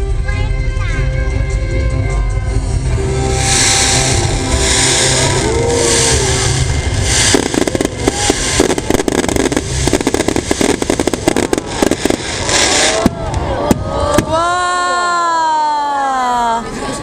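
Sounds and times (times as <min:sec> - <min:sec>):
low rumble: 0:01.9 - 0:14.4
fireworks hissing bursts: 0:02.5 - 0:14.6
fireworks crackling pops: 0:03.3 - 0:14.6.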